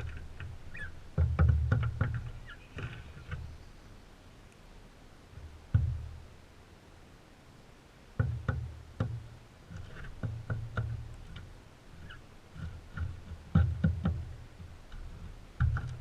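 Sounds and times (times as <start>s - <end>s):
birds knocking at feeder: 0.0s - 3.6s, 8.2s - 16.0s.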